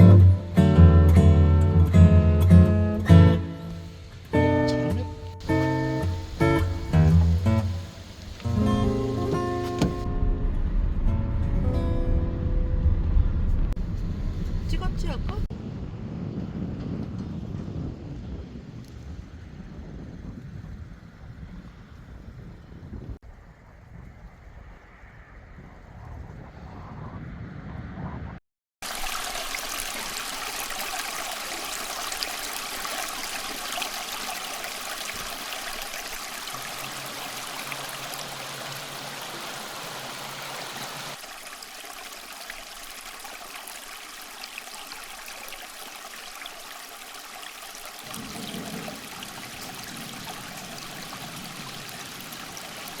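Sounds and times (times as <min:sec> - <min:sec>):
mountain stream rushing: 0:03.3 - 0:10.1, 0:28.8 - 0:53.0.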